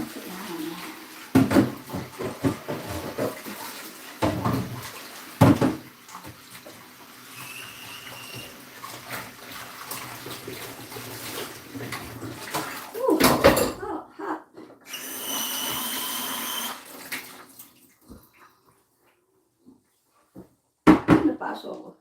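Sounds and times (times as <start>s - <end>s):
kitchen tap running: 0.0s - 14.0s, 14.8s - 18.2s
knocks and clatters in sink: 1.3s - 6.8s, 8.2s - 14.0s, 20.8s - 21.5s.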